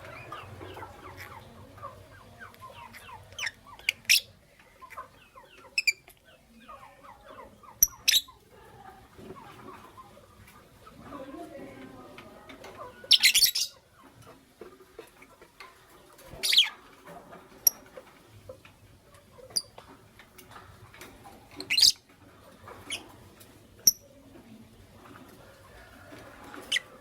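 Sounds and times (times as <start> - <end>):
lovebirds shrill calls: 13.1 - 13.8.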